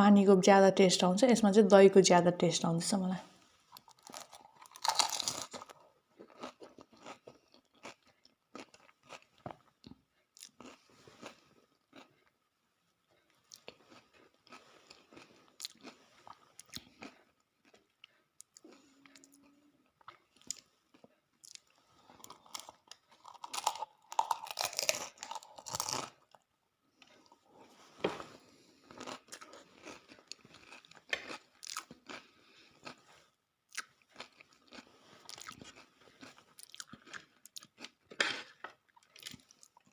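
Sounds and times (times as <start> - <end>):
person crunching food: 3.7 - 12.4, 13.2 - 27.4, 28.3 - 39.9.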